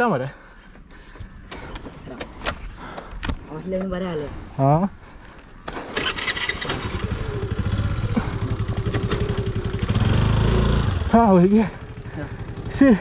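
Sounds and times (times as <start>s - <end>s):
scooter engine starting and running: 5.7s - 13.0s.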